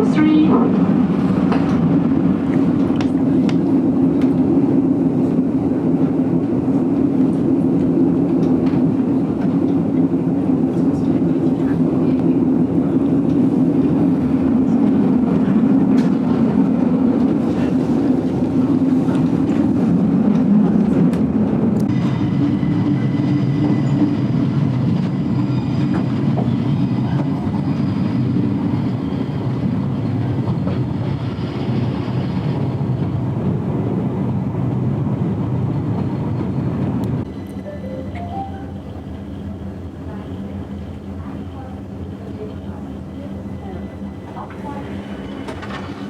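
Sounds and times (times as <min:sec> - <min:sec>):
train rumbling on rails: 0:00.0 - 0:46.0.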